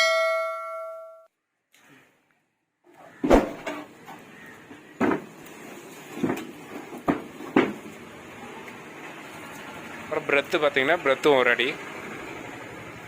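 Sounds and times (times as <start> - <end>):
wooden box knocking and clattering: 5.0 - 5.3, 6.2 - 7.8.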